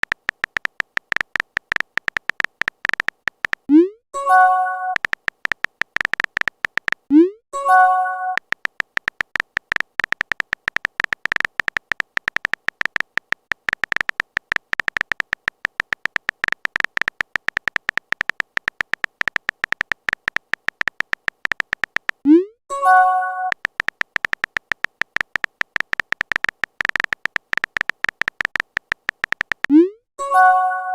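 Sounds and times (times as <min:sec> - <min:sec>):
phone keyboard tap clicks: 0:00.0 - 0:03.7, 0:04.9 - 0:07.1, 0:08.3 - 0:22.2, 0:23.4 - 0:29.7.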